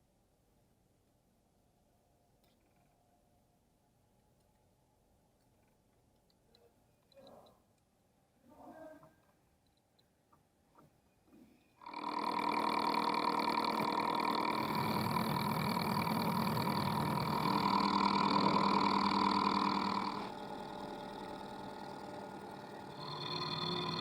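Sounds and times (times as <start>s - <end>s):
machine tool whining: 11.8s - 24.0s.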